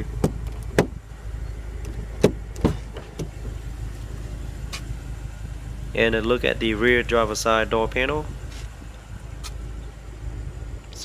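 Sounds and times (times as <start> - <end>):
steady low hum: 0.0 - 11.0
car door latch clicks: 0.1 - 1.0, 1.8 - 3.6.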